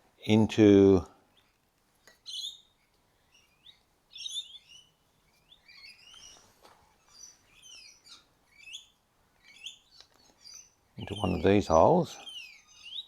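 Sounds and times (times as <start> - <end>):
faint birdsong chirping: 0.0 - 13.0.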